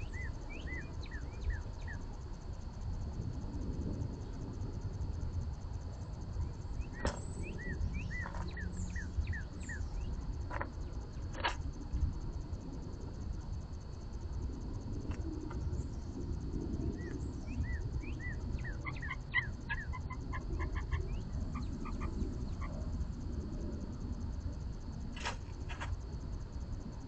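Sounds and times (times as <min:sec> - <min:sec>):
low outdoor rumble: 0:00.0 - 0:27.0
bird chirping: 0:06.8 - 0:10.1, 0:17.0 - 0:22.8.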